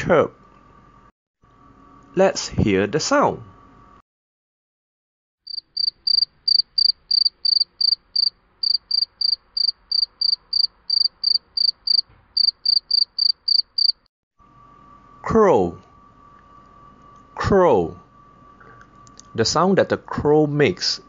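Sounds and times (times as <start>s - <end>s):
cricket chirping: 5.5s - 14.1s.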